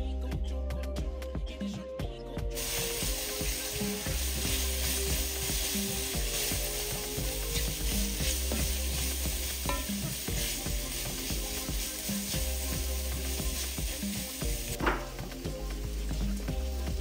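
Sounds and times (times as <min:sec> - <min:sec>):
food sizzling in hot oil: 0:02.6 - 0:17.0.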